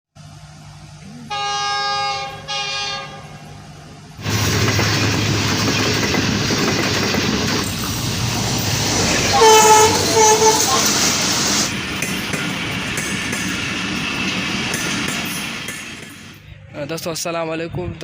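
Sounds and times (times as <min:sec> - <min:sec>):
train passing at speed: 0:00.2 - 0:16.7
train horn blasts: 0:01.3 - 0:03.7, 0:09.2 - 0:11.2.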